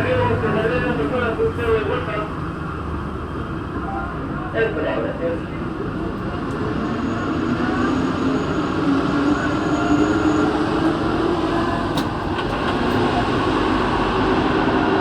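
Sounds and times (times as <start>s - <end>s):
train rumbling hum: 0.0s - 15.0s.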